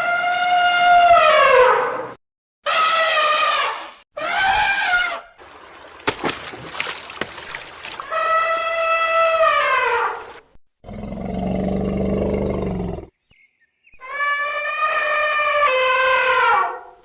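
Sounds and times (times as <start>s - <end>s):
elephant trumpeting: 2.7s - 5.3s, 14.0s - 17.0s
elephant low roar: 10.8s - 13.1s.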